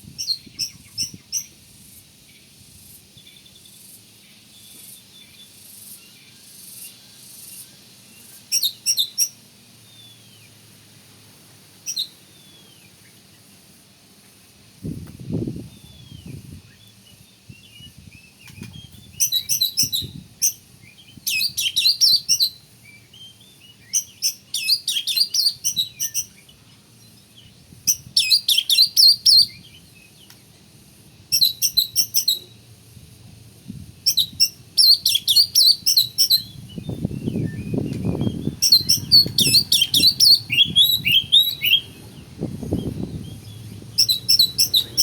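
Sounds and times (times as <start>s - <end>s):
bird singing rapid high notes: 34.1s - 45.0s.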